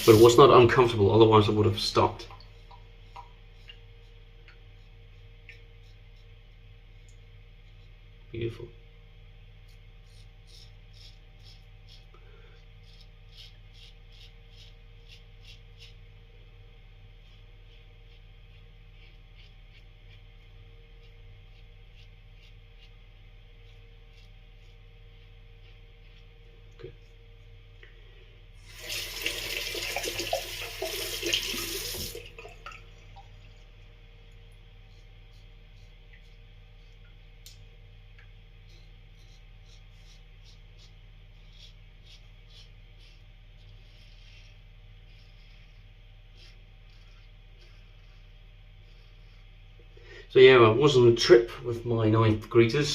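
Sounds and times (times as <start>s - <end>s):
low steady hum: 0.0s - 52.9s
razor scraping stubble: 9.7s - 12.2s, 12.8s - 16.0s, 17.2s - 27.1s, 38.6s - 49.5s
water splashing in basin: 28.7s - 33.3s
tap running into sink: 28.8s - 32.8s.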